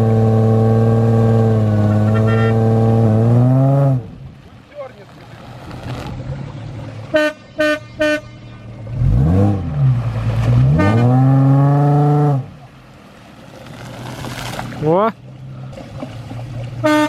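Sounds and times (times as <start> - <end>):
engine revving: 0.0 - 4.2, 7.6 - 12.6
car horn beeps: 2.0 - 2.8, 7.1 - 9.2, 10.7 - 11.4, 16.8 - 17.0.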